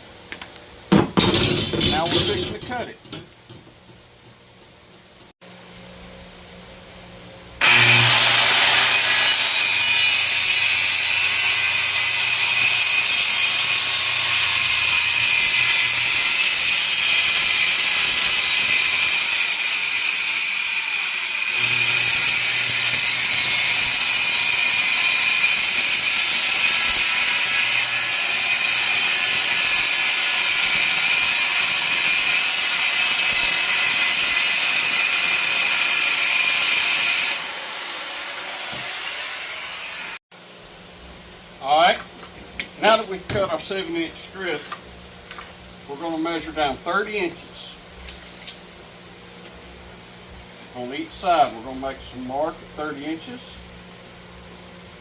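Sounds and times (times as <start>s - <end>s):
power saw cutting plywood: 7.6s - 40.2s.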